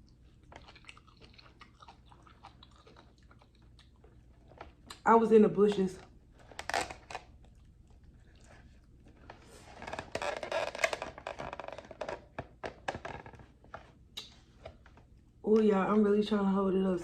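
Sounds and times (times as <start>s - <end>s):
rustling and scraping: 9.1s - 15.1s.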